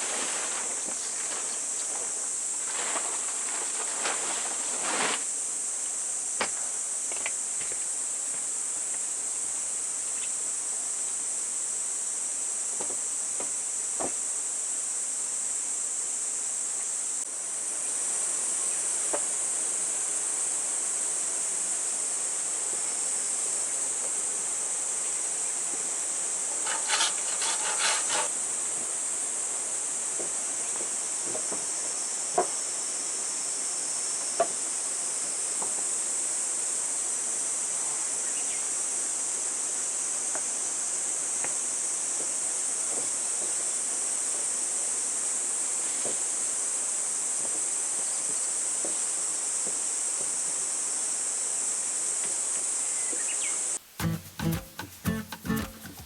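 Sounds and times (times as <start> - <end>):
scraping and rustling: 0.0 - 5.4, 26.6 - 28.4, 54.0 - 56.0
insects droning: 0.0 - 56.0.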